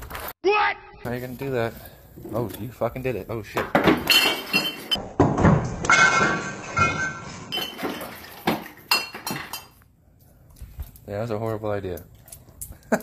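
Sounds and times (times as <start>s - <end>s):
cans and bottles clattering on floor: 3.5s - 9.8s.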